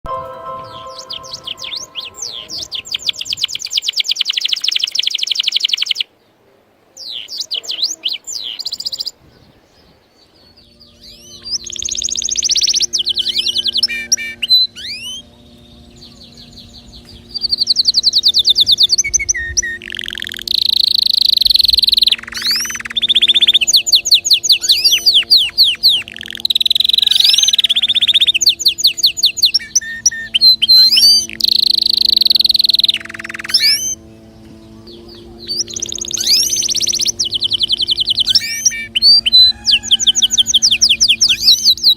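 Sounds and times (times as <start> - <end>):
canary singing trills: 10.6 - 41.9.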